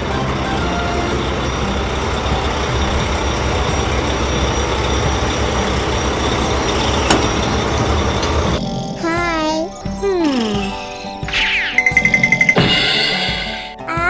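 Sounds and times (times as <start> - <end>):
cartoon sound effect: 0.0 - 2.0.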